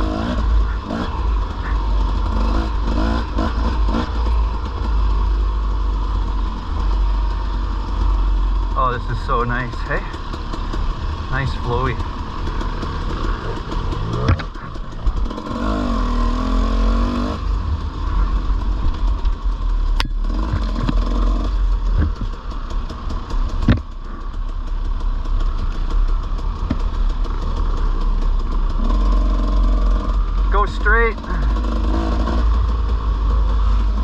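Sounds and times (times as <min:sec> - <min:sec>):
dirt bike engine revving: 0:00.0 - 0:34.0
sharp knocks: 0:23.6 - 0:23.9.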